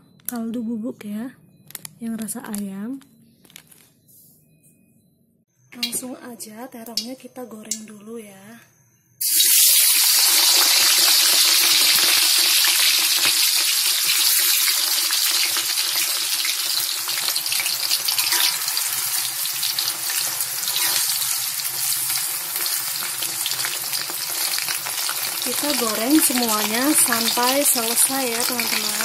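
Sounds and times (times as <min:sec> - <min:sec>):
vegetables sizzling in hot oil: 0:09.2 - 0:29.0.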